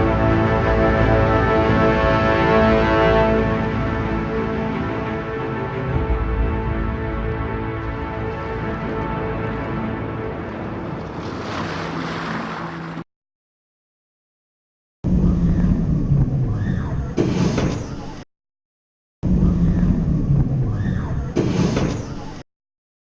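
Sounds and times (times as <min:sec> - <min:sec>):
ride low rumble: 0:15.0 - 0:17.2, 0:19.2 - 0:21.3.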